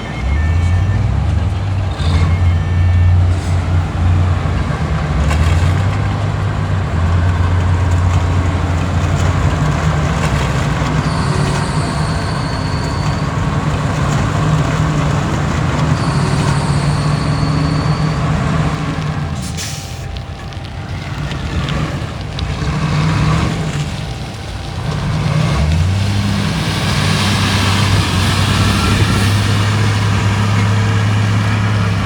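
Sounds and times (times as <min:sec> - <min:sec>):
diesel earthmover engine: 0:00.0 - 0:32.0
high steady squeals: 0:06.9 - 0:32.0.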